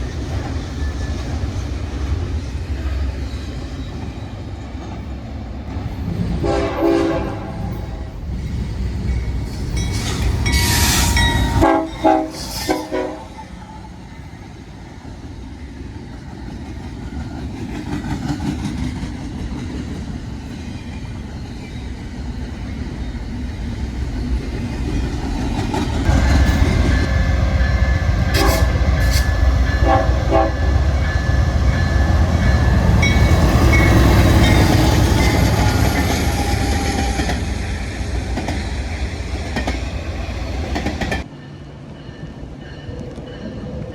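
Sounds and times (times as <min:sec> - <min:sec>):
diesel train rumble: 0:00.0 - 0:43.9
train horn blasts: 0:06.4 - 0:08.1, 0:10.6 - 0:13.4, 0:28.3 - 0:31.1.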